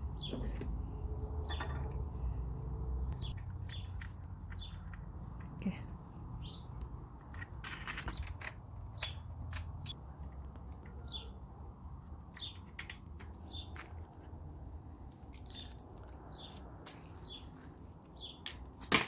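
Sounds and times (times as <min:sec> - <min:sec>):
small bird chirping: 0:03.0 - 0:06.9, 0:12.3 - 0:14.0.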